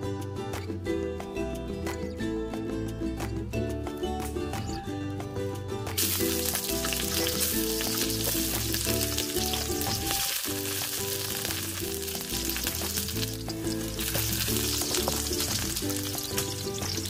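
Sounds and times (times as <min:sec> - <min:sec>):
background music: 0:00.0 - 0:17.0
garlic sizzling in hot oil: 0:06.0 - 0:17.0.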